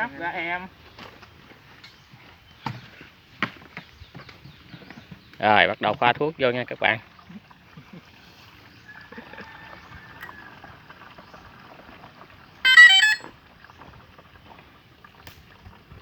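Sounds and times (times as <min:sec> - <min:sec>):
electronic alert tones: 0:12.7 - 0:13.3.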